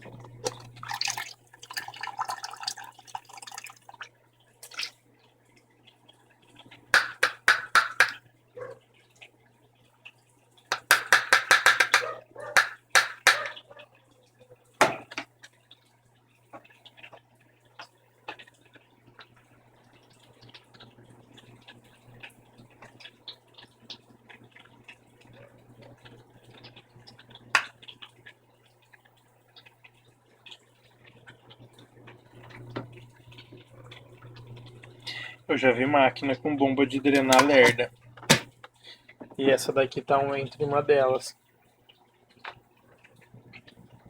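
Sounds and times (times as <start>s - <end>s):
drain pump hum: 0.0s - 5.0s, 6.5s - 8.7s, 29.5s - 44.0s
water trickling and dripping: 0.0s - 11.7s, 12.4s - 44.0s.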